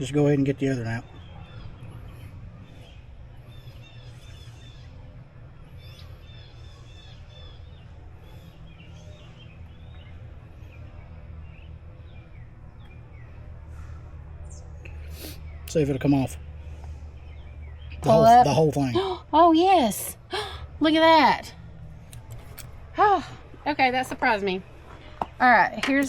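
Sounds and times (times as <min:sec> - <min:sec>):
low outdoor background rumble: 0:00.0 - 0:26.0
small birds chirping: 0:00.0 - 0:26.0.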